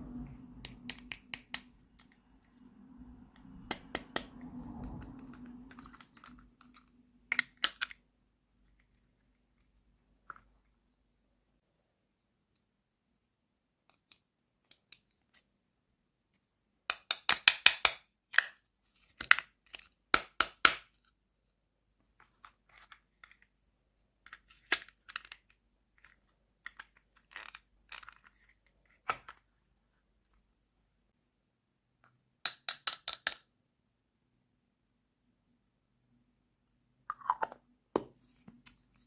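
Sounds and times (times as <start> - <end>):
small plastic pieces handled: 4.9 - 8.0, 24.2 - 29.4.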